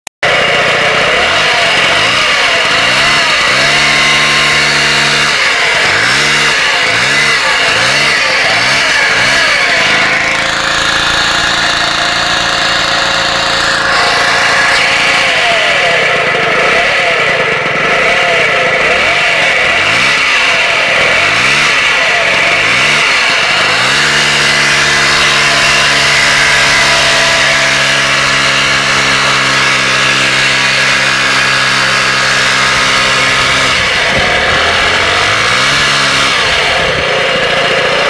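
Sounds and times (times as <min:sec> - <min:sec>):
moped engine revving: 0:00.2 - 0:38.0.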